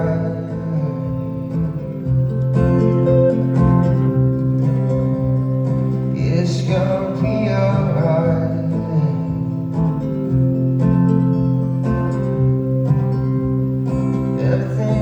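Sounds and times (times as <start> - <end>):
person singing: 0.0 - 1.9, 4.1 - 9.7, 14.0 - 15.0
acoustic guitar chords: 0.0 - 15.0.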